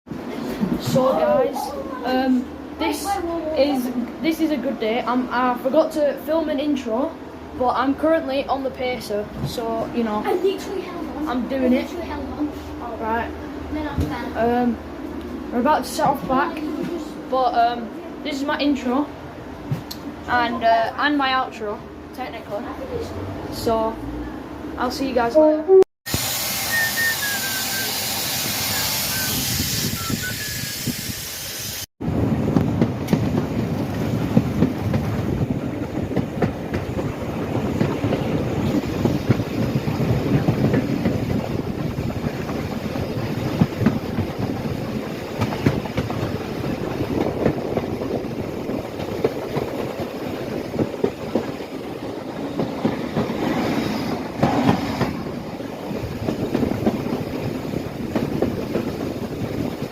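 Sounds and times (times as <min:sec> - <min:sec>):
train rumbling on track: 0:00.1 - 0:59.9
steady hiss: 0:26.1 - 0:31.9.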